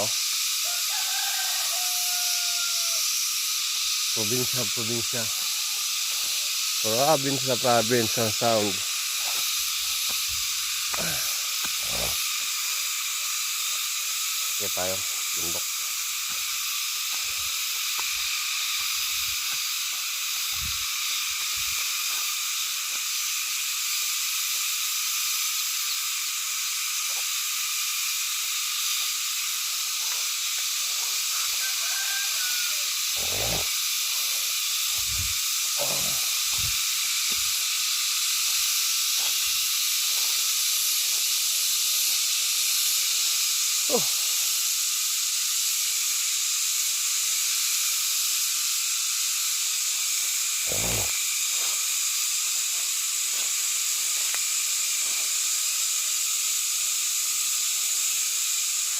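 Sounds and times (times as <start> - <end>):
insect chorus shrill hiss: 0.0 - 58.9.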